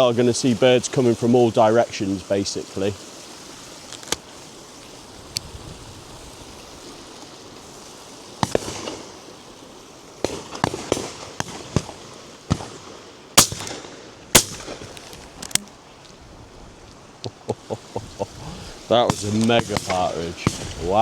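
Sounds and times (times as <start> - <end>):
shotgun shots: 10.2 - 15.0, 19.1 - 21.0.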